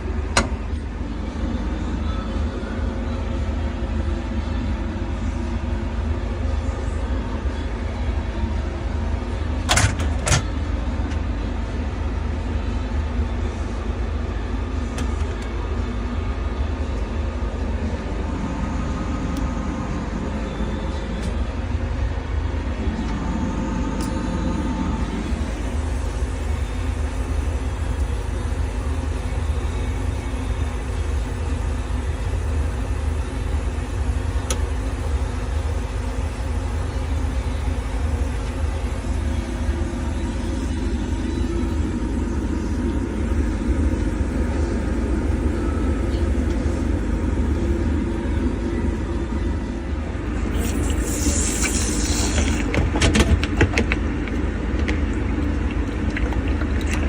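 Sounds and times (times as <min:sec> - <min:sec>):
refrigeration unit humming: 0:00.0 - 0:57.0
faint steady tones: 0:10.7 - 0:52.3.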